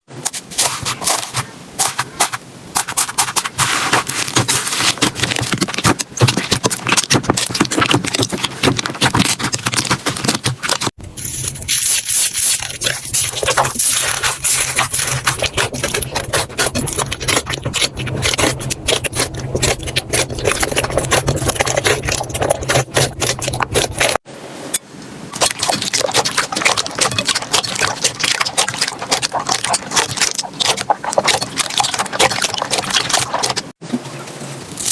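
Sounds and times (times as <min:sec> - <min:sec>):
slime crackling and popping: 0:00.6 - 0:24.1.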